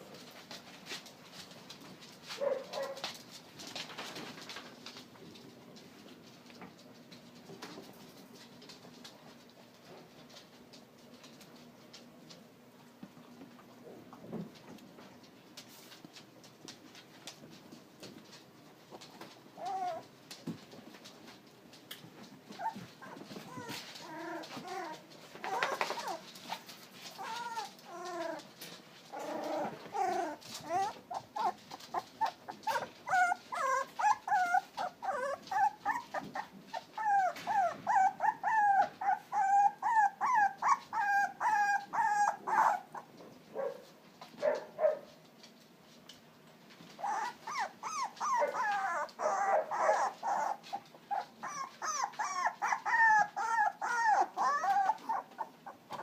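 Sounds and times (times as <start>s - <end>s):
puppies crying: 19.6s - 20.1s, 22.5s - 28.5s, 29.1s - 43.1s, 47.0s - 56.0s.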